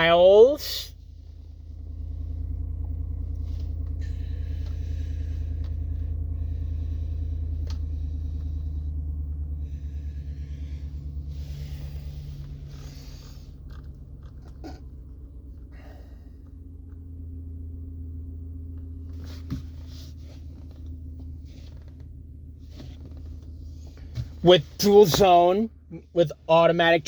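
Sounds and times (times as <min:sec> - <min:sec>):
engine idling: 0:00.0 - 0:27.0
soft rustling: 0:19.0 - 0:24.8.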